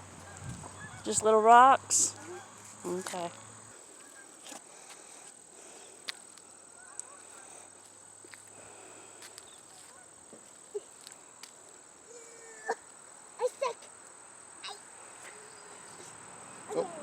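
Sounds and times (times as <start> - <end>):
insect trilling: 0.1 - 17.0
faint sharp clicks: 6.0 - 7.1.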